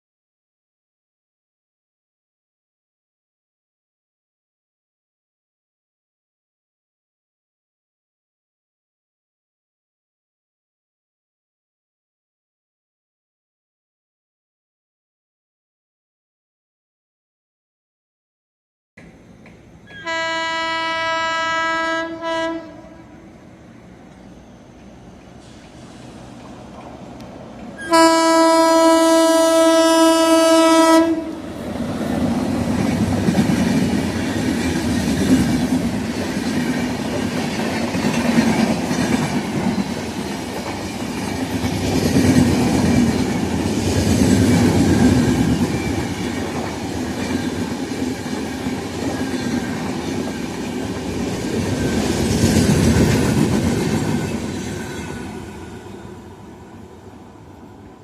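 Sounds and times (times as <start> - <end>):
train wheels rumbling past: 19.0 - 58.0
train horn: 19.9 - 23.2, 27.8 - 31.4
wheels clacking over rail joints: 31.6 - 56.0.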